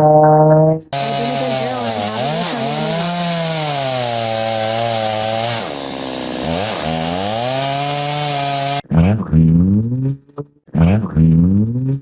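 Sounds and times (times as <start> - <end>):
chainsaw cutting wood: 0.9 - 8.8.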